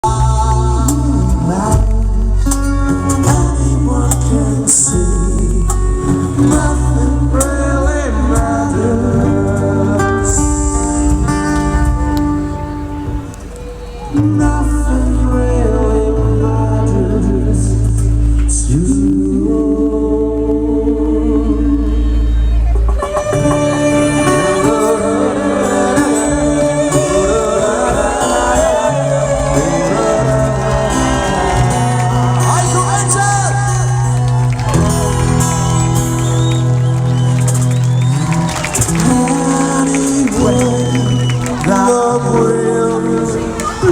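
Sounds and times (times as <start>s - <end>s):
live band playing: 0.0s - 18.9s, 22.0s - 43.9s
guitar: 0.0s - 43.9s
strong bass: 0.0s - 43.9s
person singing: 23.0s - 36.6s, 38.8s - 43.9s.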